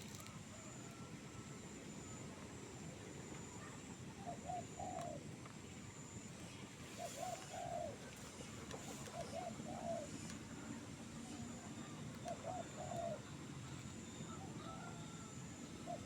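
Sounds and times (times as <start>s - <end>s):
dove cooing: 4.2s - 5.2s, 7.0s - 8.0s, 8.9s - 10.2s, 12.2s - 13.3s.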